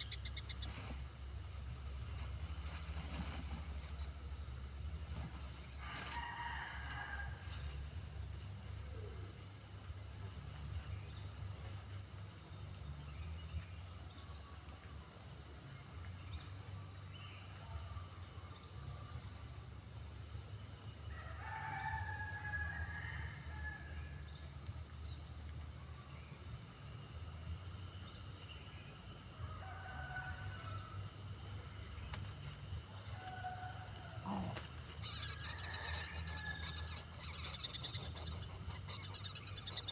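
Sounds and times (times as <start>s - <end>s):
high insect drone: 0.0s - 39.9s
distant bird calls: 33.2s - 39.9s.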